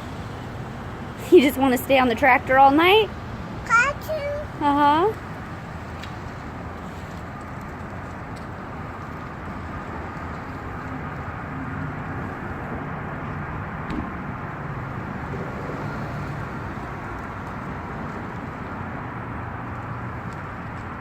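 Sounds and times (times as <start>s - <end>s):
low vehicle-like rumble: 0.0s - 21.0s.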